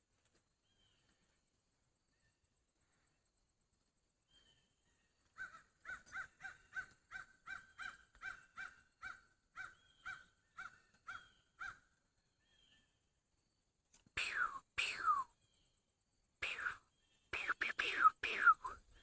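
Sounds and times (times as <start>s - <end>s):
bird cawing: 5.4s - 11.7s.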